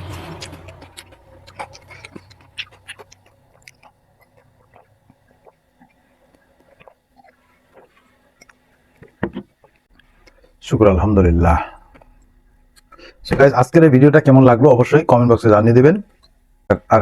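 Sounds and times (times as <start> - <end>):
person chewing food: 0.0 - 10.6, 11.7 - 13.2, 16.1 - 16.6.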